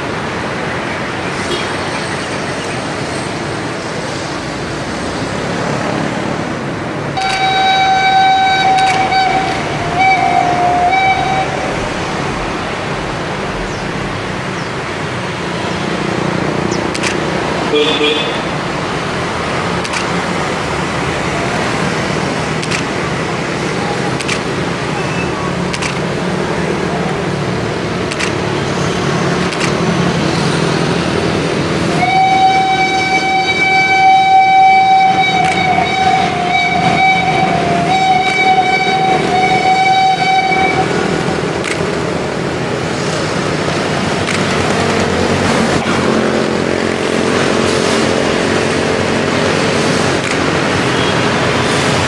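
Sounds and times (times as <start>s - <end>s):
train rumbling: 0.0s - 52.0s
steam locomotive whistle: 7.2s - 11.8s, 31.9s - 41.2s.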